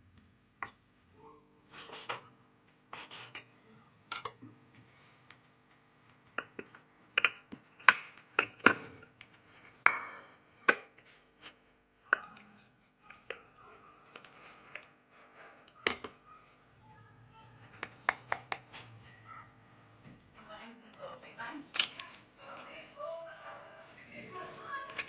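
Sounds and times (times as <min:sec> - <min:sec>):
utensils and cookware knocking: 0:09.8 - 0:11.0.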